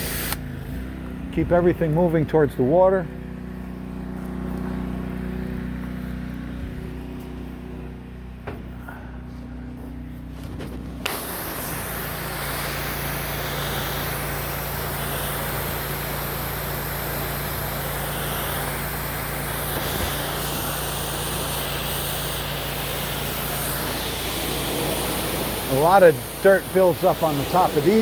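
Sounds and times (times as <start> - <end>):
water spraying hiss: 0.0 - 0.4, 10.8 - 28.0
pump motor hum: 0.0 - 28.0.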